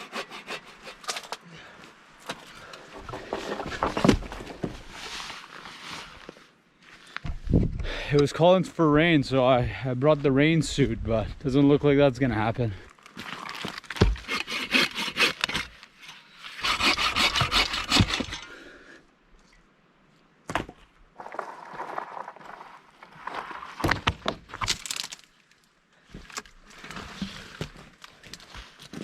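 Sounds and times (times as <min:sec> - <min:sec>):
dry wood crunching and snapping: 0:12.8 - 0:15.8, 0:23.2 - 0:26.9.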